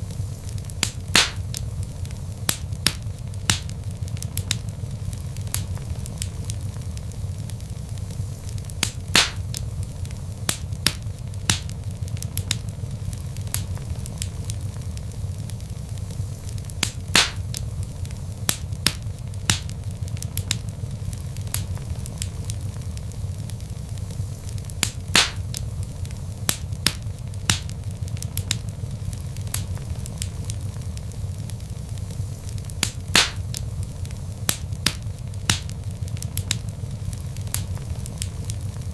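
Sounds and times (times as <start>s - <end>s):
log fire crackling: 0.0s - 38.9s.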